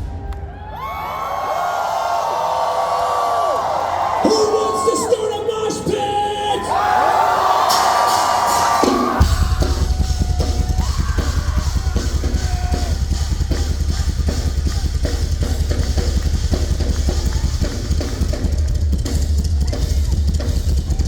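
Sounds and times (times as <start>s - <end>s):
snare tom and cymbal strikes: 7.6s - 21.0s
fast double bass drum: 9.2s - 21.0s.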